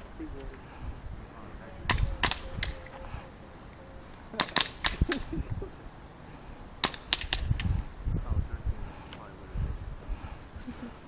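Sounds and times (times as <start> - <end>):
airsoft gun shots: 1.9 - 2.8, 4.4 - 5.2, 6.8 - 7.7.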